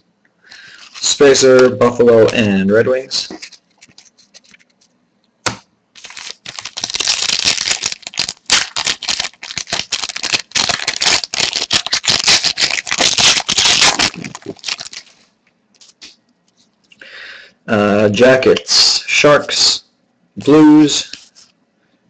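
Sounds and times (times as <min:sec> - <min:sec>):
trading cards shuffling: 0:03.2 - 0:15.2.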